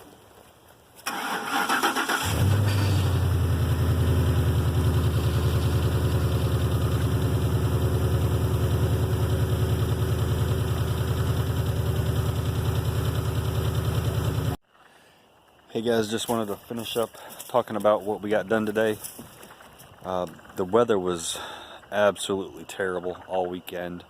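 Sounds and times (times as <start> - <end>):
starter cranking: 1.0 - 3.3
engine idling: 1.1 - 14.6, 18.2 - 23.9.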